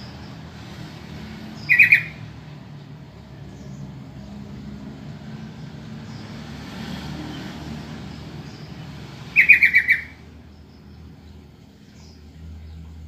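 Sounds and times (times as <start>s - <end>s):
bird chattering calls: 1.6s - 2.3s, 8.5s - 10.3s.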